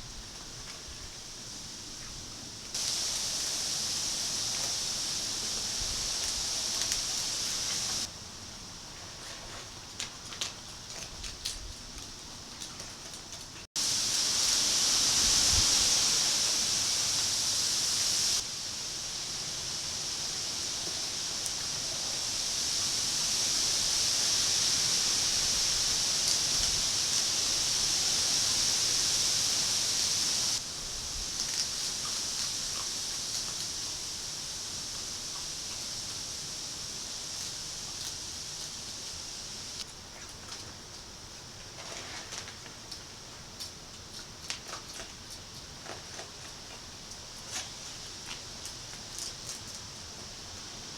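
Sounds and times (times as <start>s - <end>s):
high-pitched hiss: 0.8s - 8.4s, 13.8s - 39.9s.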